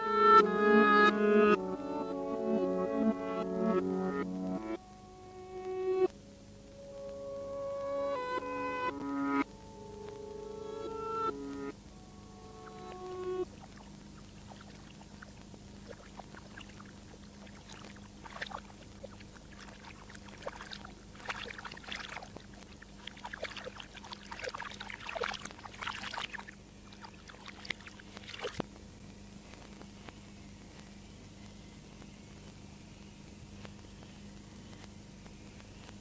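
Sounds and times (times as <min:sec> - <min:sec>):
reversed music tones: 0:00.0 - 0:21.0
steady low hum: 0:00.0 - 0:36.0
reversed water crackles and splashes: 0:12.7 - 0:28.8.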